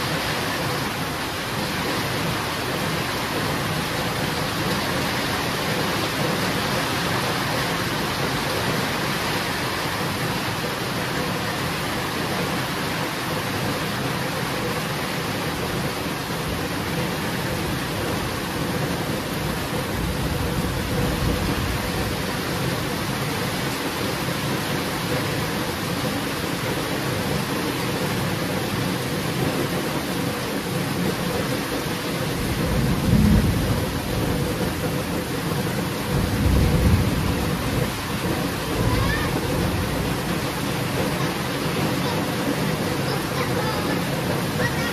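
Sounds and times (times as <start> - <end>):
heavy rain falling: 0.0 - 44.9
low rumble of thunder: 15.6 - 26.5, 30.6 - 41.2
rolls of thunder: 32.4 - 35.5, 36.1 - 40.3.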